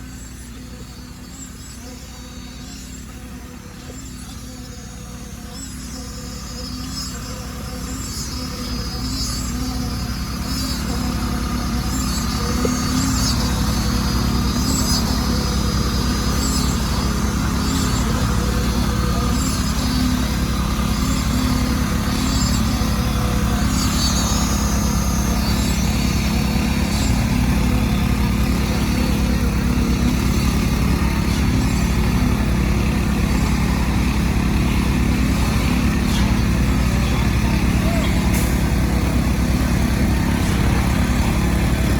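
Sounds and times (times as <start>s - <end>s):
faint high chirps: 0.0s - 41.9s
large engine rumbling: 0.0s - 41.9s.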